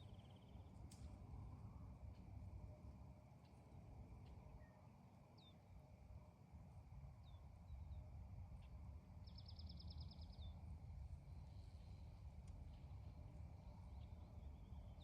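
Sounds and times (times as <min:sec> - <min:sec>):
low steady rumble: 0:05.4 - 0:15.0.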